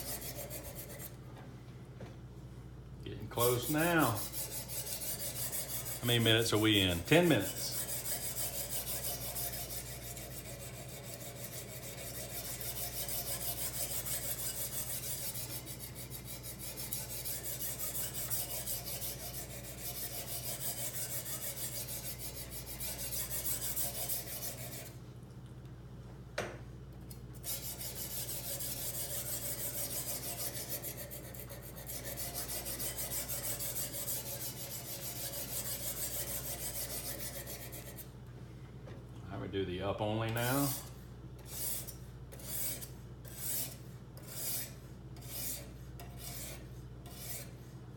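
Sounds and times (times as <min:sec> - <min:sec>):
sharpening stone scraping knife edge: 0:00.0 - 0:01.1, 0:03.4 - 0:06.0, 0:07.2 - 0:24.9, 0:27.4 - 0:38.0, 0:40.7 - 0:47.6.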